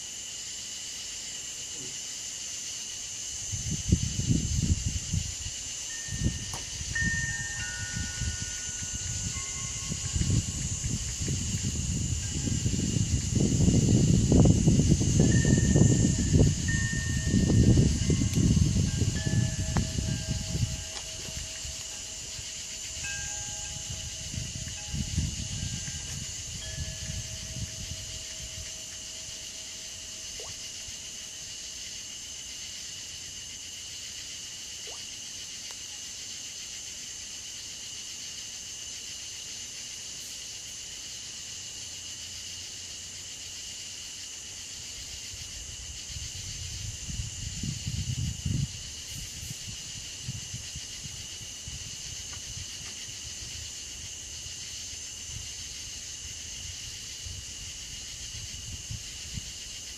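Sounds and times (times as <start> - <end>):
insects chirring: 0.0 - 59.9
low rumbling on microphone: 9.0 - 22.5, 23.7 - 28.6.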